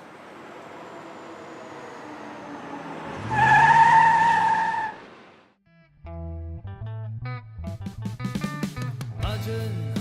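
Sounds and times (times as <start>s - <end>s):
car approaching: 0.0s - 5.6s
car tyres screeching: 0.1s - 5.4s.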